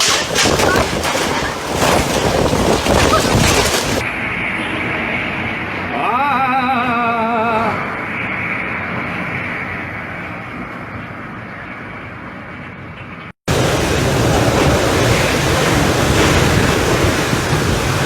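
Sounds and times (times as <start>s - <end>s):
strong wind on microphone: 0.0s - 5.9s, 13.5s - 18.0s.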